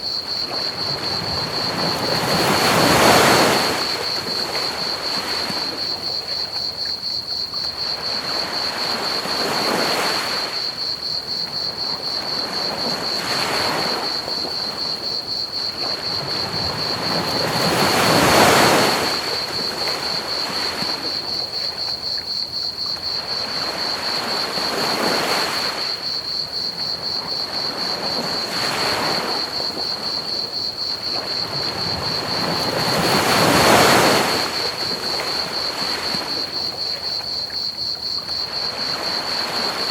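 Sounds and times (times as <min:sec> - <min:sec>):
crickets chirping: 0:00.0 - 0:39.9
ocean waves breaking: 0:00.4 - 0:06.1, 0:11.9 - 0:21.4, 0:26.8 - 0:37.3.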